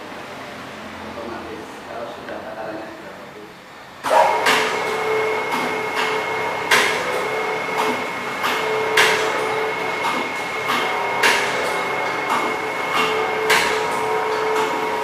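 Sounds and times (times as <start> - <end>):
mechanical hum with whine: 0.0 - 15.0
packing machine loud clack: 4.0 - 15.0.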